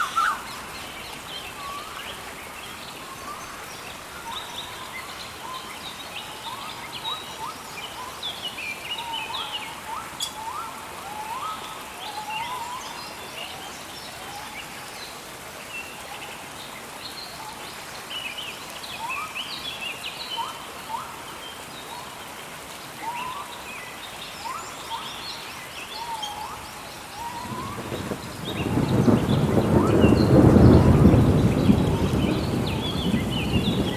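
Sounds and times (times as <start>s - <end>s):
steady rain hiss: 0.0s - 33.9s
low rumble of thunder: 27.2s - 33.9s.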